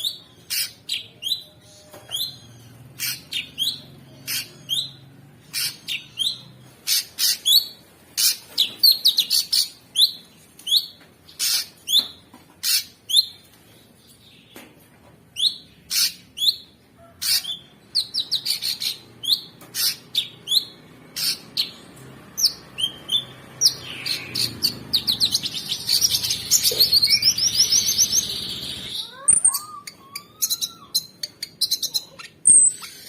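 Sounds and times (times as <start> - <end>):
bird chirping and whistling: 0.0 - 10.9, 17.3 - 21.8, 22.4 - 33.0.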